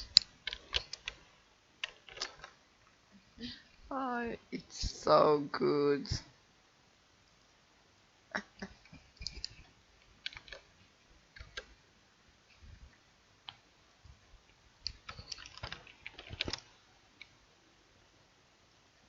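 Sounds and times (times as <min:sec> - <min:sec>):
mouse and keyboard clicking: 0:00.0 - 0:01.2, 0:01.8 - 0:02.6, 0:09.2 - 0:09.6, 0:10.2 - 0:10.7, 0:11.4 - 0:11.7, 0:14.9 - 0:17.4.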